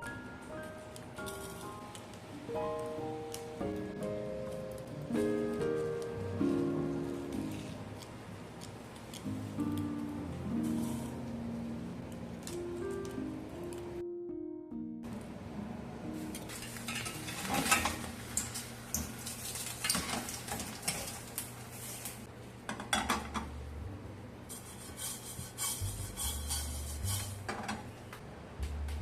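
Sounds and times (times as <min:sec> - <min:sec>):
food sizzling: 0:16.2 - 0:22.3, 0:24.5 - 0:27.5
metal utensils clinking on pots: 0:16.5 - 0:21.4.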